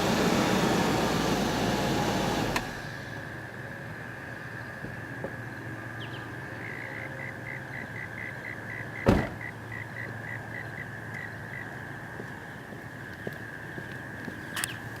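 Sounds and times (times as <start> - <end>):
car door shutting: 9.0 - 9.5.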